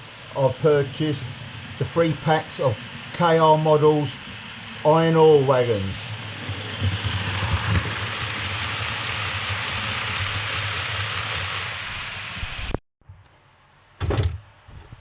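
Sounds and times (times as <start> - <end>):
model train rumbling hiss: 0.0 - 12.8
low hum: 0.0 - 13.9.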